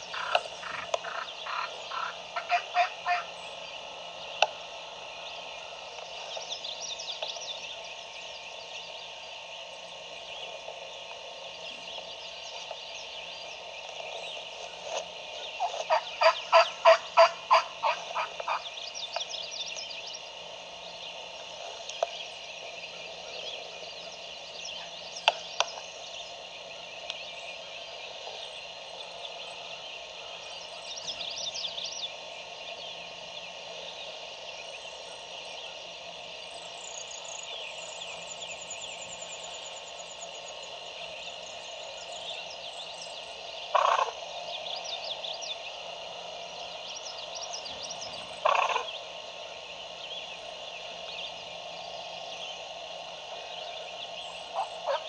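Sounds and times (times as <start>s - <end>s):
birdsong: 0.0s - 55.0s
wild turkey yelps: 0.1s - 3.3s, 43.7s - 44.1s, 48.4s - 48.9s, 54.5s - 55.0s.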